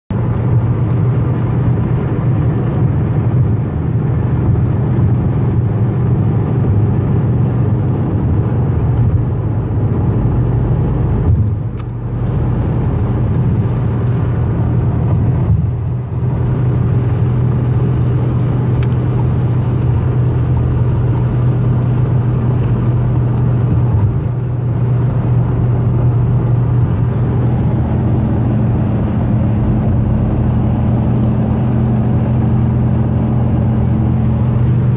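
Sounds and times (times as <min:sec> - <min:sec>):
car engine and road noise: 0:00.1 - 0:34.9.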